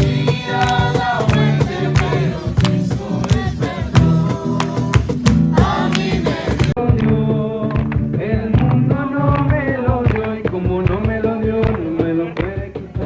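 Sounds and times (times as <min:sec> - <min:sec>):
person singing: 0:00.0 - 0:09.2
acoustic guitar strumming: 0:00.0 - 0:09.3.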